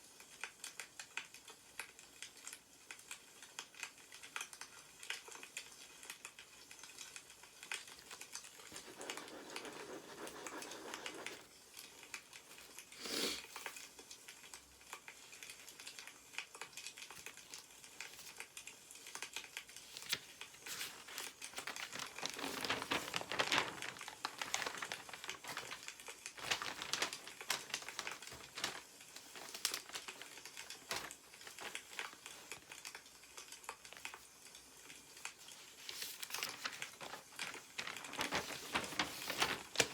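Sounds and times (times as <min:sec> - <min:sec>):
newspaper pages rustling: 0:07.7 - 0:12.9, 0:19.1 - 0:34.3, 0:34.9 - 0:39.9
wood fire crackling and popping: 0:13.5 - 0:39.9.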